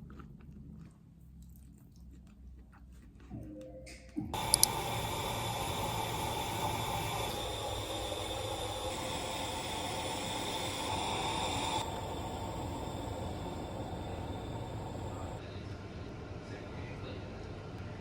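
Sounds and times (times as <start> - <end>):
faint hum: 3.6 - 15.4
sharp clicks: 4.4 - 4.8
steady hiss: 4.4 - 15.4.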